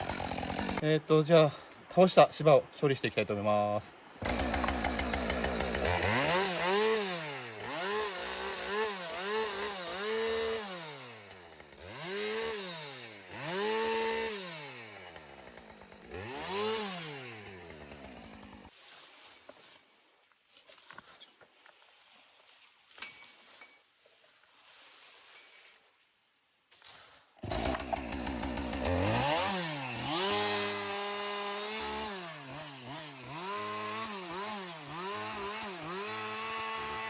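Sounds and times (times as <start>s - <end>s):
chainsaw revving while cutting: 0.0s - 0.8s, 4.2s - 18.7s, 27.4s - 37.0s.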